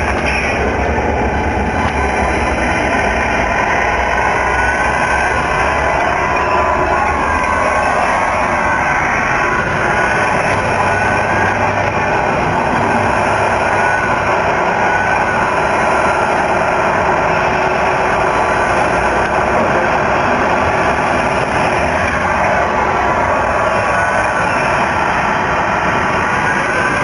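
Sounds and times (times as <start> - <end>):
simulated diesel truck engine: 0.0 - 27.0.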